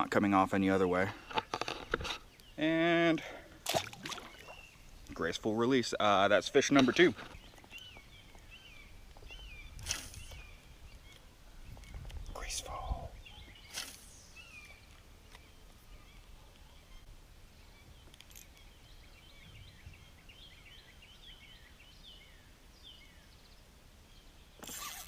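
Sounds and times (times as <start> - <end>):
faint birds chirping: 0.0 - 25.0
low wind rumble: 7.2 - 13.7.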